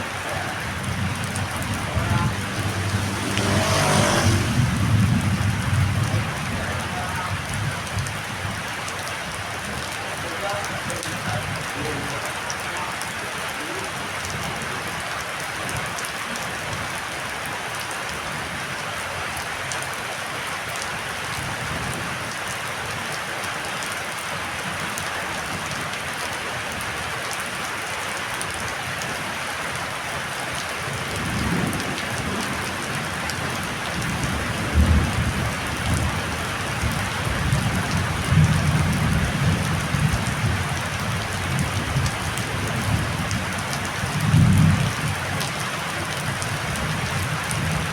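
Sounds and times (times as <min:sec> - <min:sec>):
heavy rain falling: 0:00.0 - 0:47.9
deep rumbling thunder: 0:00.6 - 0:08.2, 0:34.0 - 0:40.7.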